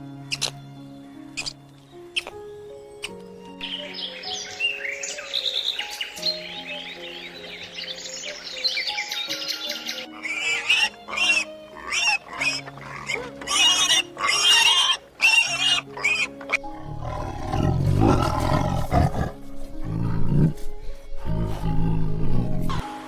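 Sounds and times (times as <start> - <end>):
background music: 0.0 - 23.0.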